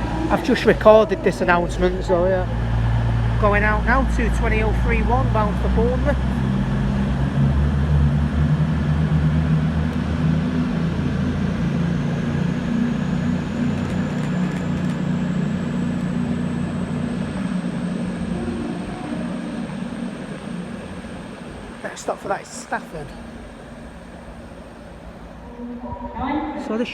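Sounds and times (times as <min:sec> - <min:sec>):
faint high whine: 0:00.0 - 0:26.4
diesel train engines droning: 0:00.0 - 0:26.9.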